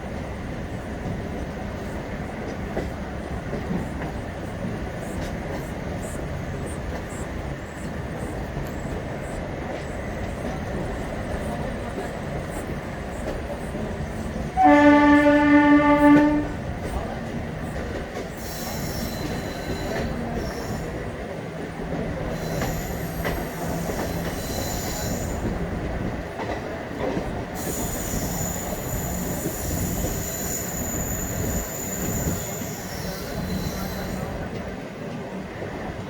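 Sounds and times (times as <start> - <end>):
train coaches rumbling on track: 0.0 - 36.0
locomotive horn blast: 14.6 - 16.6
wheel squeal: 18.4 - 20.9, 22.3 - 25.4, 27.6 - 34.3.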